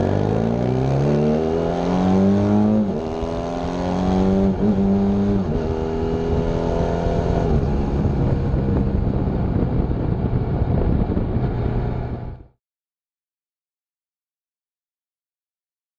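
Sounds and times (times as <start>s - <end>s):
motorcycle engine running: 0.0s - 12.5s.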